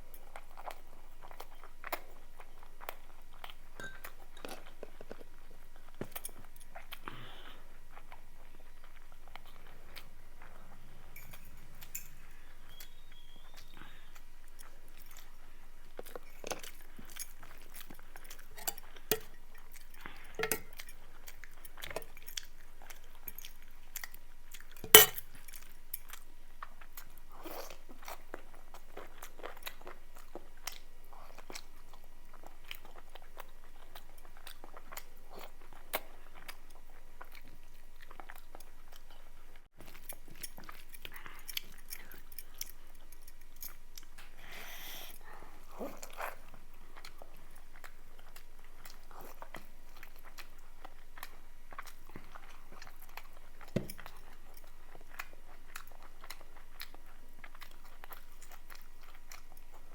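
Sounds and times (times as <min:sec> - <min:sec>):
person chewing and crunching food: 0:00.0 - 0:59.9.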